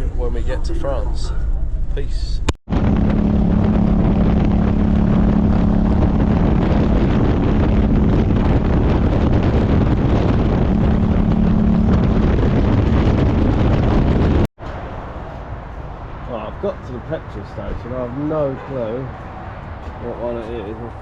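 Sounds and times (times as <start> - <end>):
wind buffeting microphone: 0.0 - 14.5
motorcycle engine hum: 2.7 - 14.5.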